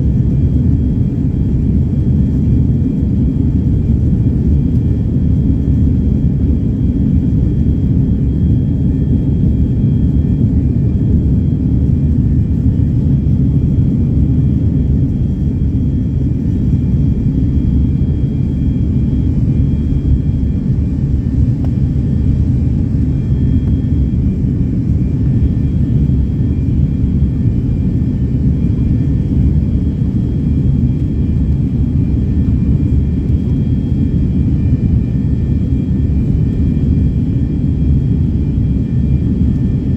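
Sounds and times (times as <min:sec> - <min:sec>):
jet engine rumble in cabin: 0:00.0 - 0:39.9.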